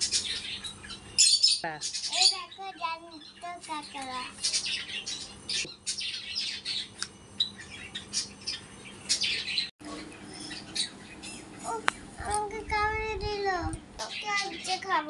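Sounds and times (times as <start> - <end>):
small birds chirping and squawking: 0.0 - 15.0
child's voice: 2.1 - 4.4, 11.6 - 15.0.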